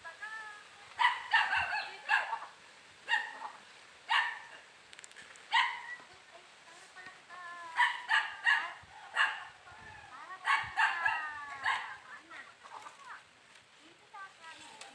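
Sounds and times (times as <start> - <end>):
dog barking: 1.0 - 4.6, 5.5 - 6.0, 7.8 - 9.6, 10.4 - 12.1.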